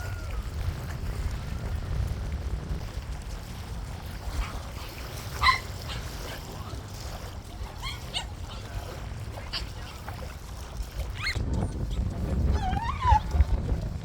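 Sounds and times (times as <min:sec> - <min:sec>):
wind rumble on microphone: 0:00.0 - 0:14.0
dog yipping: 0:05.3 - 0:06.2, 0:07.8 - 0:08.6, 0:11.2 - 0:11.4, 0:12.5 - 0:13.4.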